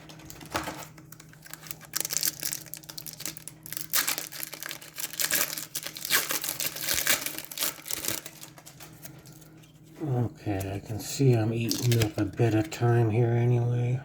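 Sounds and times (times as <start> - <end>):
wrapper crinkling and tearing: 0.0 - 9.6, 11.6 - 12.7.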